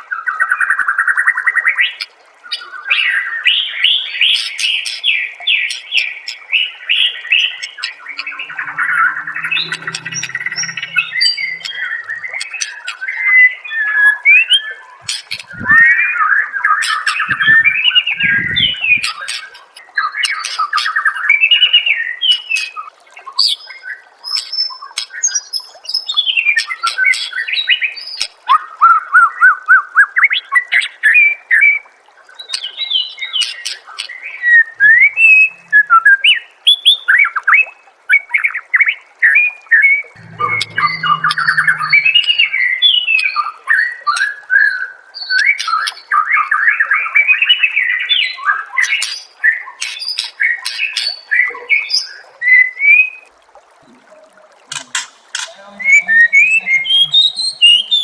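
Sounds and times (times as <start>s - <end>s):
songbird singing trills and whistles: 32.4s - 53.2s, 55.4s - 58.0s
low thumps: 40.2s - 43.2s.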